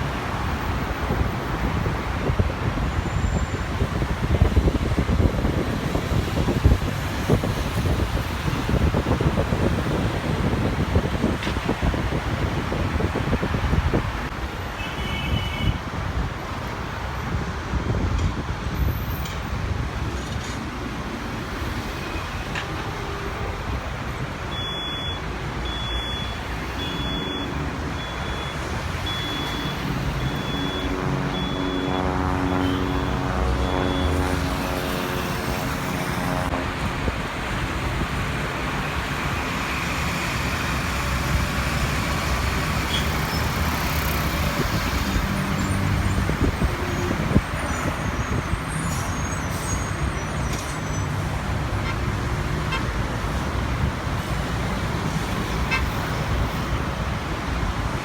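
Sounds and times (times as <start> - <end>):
engine and traffic rumble: 0.0 - 58.0
faint high beep: 24.5 - 32.0
pitched engine drone: 29.1 - 36.8.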